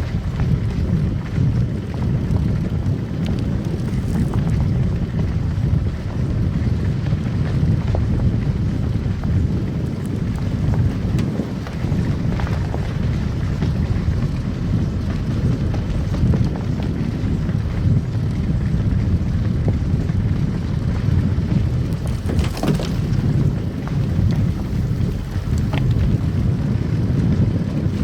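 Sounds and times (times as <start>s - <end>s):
car driving on snow: 0.0s - 28.0s
light crackles: 0.0s - 28.0s
loud rustling: 21.6s - 26.6s.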